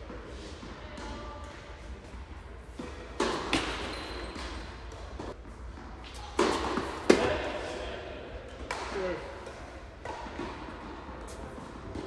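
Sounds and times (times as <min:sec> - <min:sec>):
tennis racket hitting ball: 0:02.1 - 0:07.8, 0:08.5 - 0:12.0.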